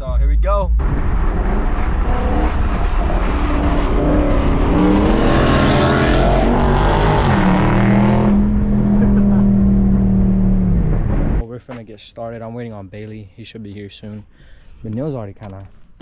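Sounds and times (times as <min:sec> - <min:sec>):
car engine accelerating: 0:00.8 - 0:11.4
road and wind rush: 0:00.8 - 0:11.4.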